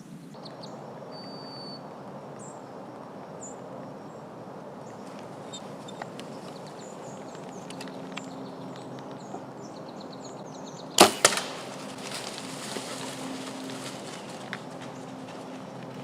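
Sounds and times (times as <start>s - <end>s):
bow shot cracks: 11.0s - 12.4s.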